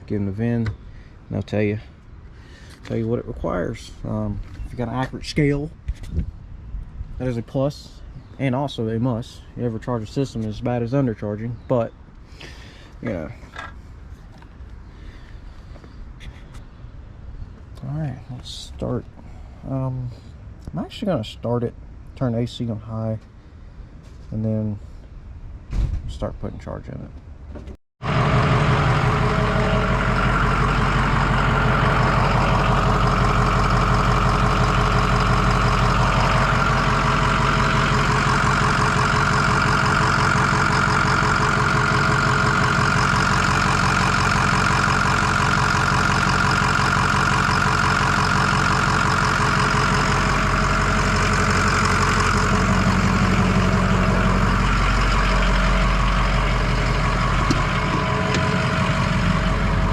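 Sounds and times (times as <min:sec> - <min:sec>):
diesel engine idling: 0:28.0 - 0:59.9.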